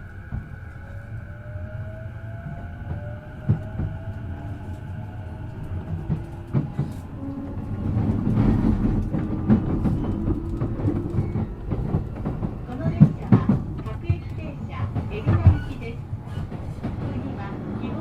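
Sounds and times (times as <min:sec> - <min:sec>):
wheels clicking over rail joints: 0:04.7 - 0:17.4.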